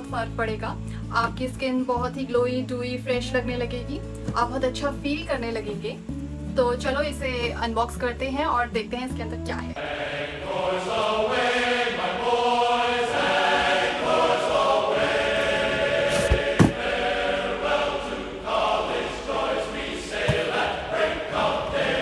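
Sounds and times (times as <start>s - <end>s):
choir-like chanting music: 9.8s - 22.0s
sharp knocks: 16.3s - 16.8s.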